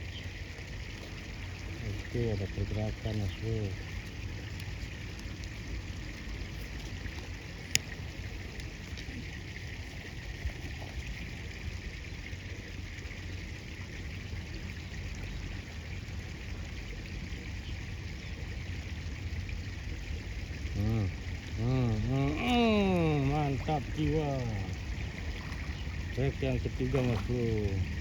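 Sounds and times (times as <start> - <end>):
river water rushing: 20.4 - 28.0.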